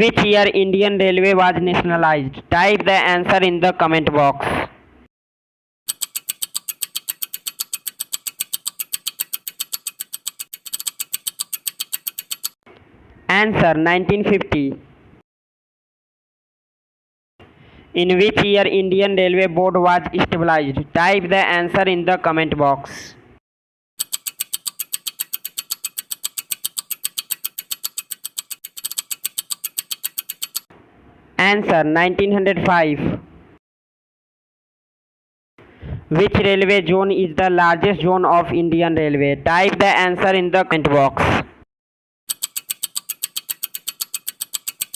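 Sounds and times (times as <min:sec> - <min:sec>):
rapid timer ticks: 0:05.9 - 0:12.6, 0:24.0 - 0:30.7, 0:42.3 - 0:44.9.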